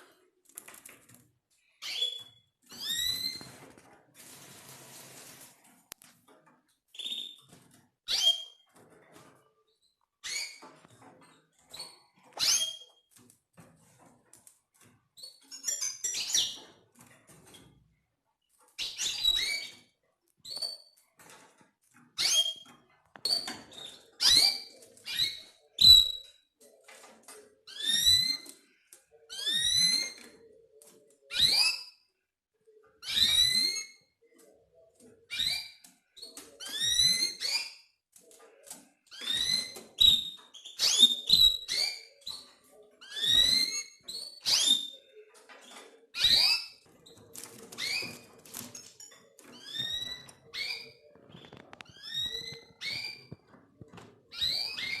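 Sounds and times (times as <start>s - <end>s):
canaries chirping: 1.7s - 3.8s, 7.0s - 17.8s, 18.6s - 32.0s, 33.0s - 55.0s
canaries whistling call notes: 1.8s - 3.4s, 12.4s - 12.9s, 39.2s - 42.1s, 43.1s - 45.0s.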